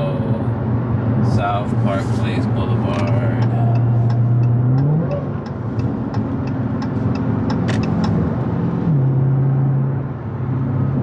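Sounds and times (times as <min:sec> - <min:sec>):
car engine droning: 0:00.0 - 0:11.0
turn signal ticking: 0:01.2 - 0:08.9.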